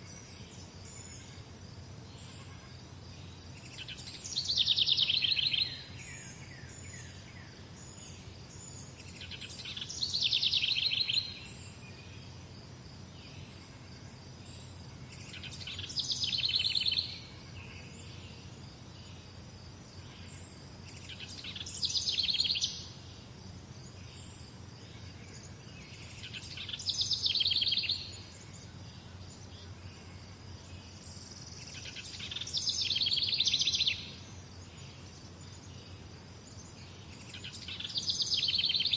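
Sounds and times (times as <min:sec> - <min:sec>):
songbird trilling: 0:03.6 - 0:07.2, 0:08.9 - 0:12.2, 0:15.2 - 0:17.3, 0:21.0 - 0:23.0, 0:26.0 - 0:28.6, 0:31.4 - 0:34.2, 0:37.1 - 0:38.9.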